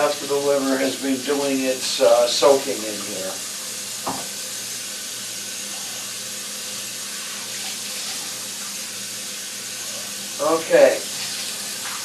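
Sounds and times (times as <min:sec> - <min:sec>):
tap running into sink: 0:04.0 - 0:04.4.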